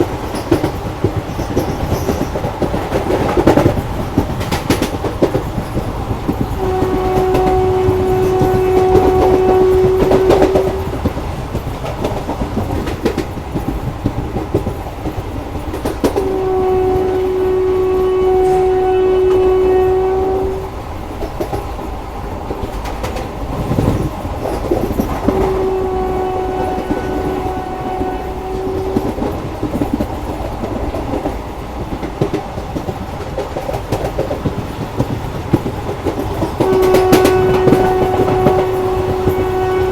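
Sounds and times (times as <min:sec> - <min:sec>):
train clickety-clack on track: 0:00.0 - 0:39.9
train horn blasts: 0:06.5 - 0:11.1, 0:16.0 - 0:20.8, 0:25.2 - 0:29.8, 0:36.5 - 0:39.9.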